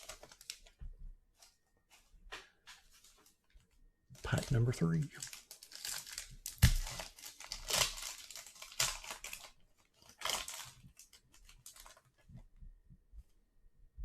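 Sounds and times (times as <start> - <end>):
wrapper tearing and crinkling: 0.0 - 0.8, 4.2 - 12.1.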